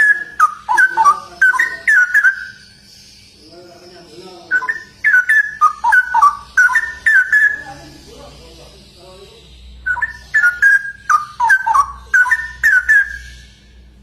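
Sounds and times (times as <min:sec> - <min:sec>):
bird singing whistled phrases: 0:00.0 - 0:03.2, 0:04.3 - 0:07.8, 0:09.8 - 0:13.8.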